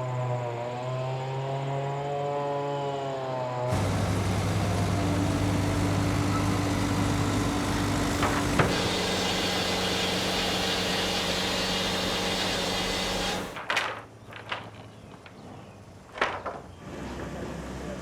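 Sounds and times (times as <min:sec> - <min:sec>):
engine humming: 0:03.7 - 0:13.6.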